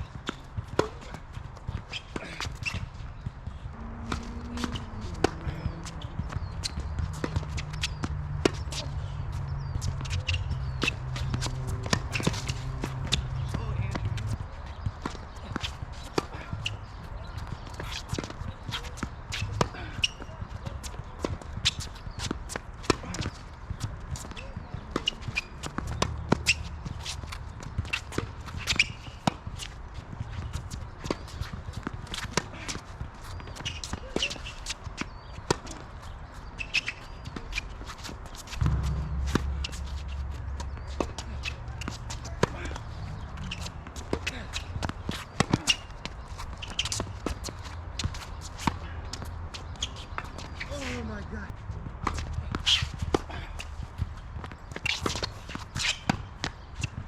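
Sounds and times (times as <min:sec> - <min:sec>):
shoes squeaking: 0:00.0 - 0:57.0
tennis ball bouncing: 0:00.2 - 0:20.4, 0:21.2 - 0:29.8, 0:36.4 - 0:50.6
footsteps scuffing on court: 0:00.2 - 0:57.0
racket hitting ball: 0:03.8 - 0:08.9, 0:37.3 - 0:45.9
footsteps and shoe scuffs: 0:36.6 - 0:48.7
tennis ball knocks: 0:38.5 - 0:43.2
steady low hum: 0:38.6 - 0:43.4.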